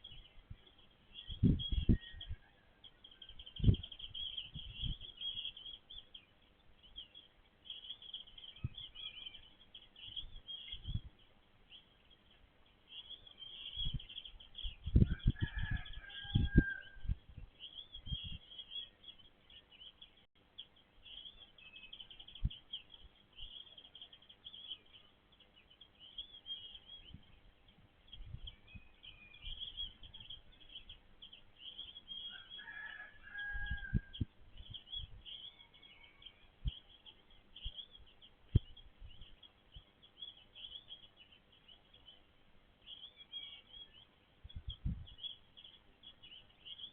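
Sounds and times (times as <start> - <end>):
small birds chirping: 0.0 - 46.9
rooster crowing: 15.0 - 17.1, 32.2 - 34.2, 35.4 - 36.6.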